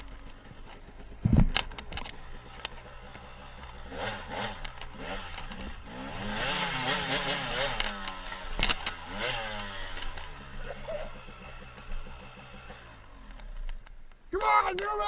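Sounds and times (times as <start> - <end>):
dirt bike engine revving: 0.0 - 13.7.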